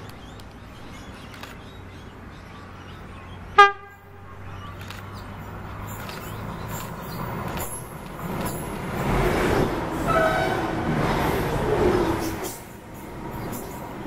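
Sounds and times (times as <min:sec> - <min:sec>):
train passing at speed: 0:05.4 - 0:14.0.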